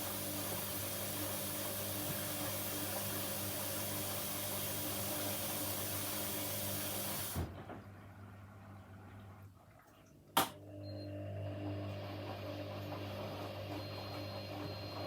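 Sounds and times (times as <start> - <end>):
low mains hum: 7.5 - 12.9.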